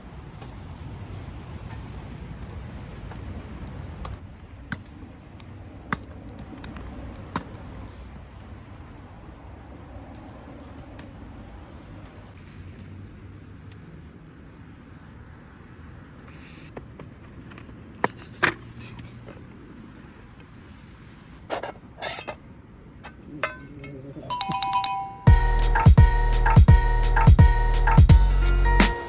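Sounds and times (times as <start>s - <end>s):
background music with steady beat: 24.3s - 29.0s
bell-like chime: 24.3s - 29.0s.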